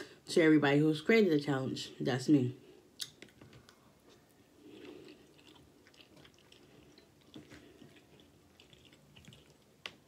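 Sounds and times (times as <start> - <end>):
chewing soft food: 2.9 - 10.0
wet mouth clicks: 3.0 - 3.4.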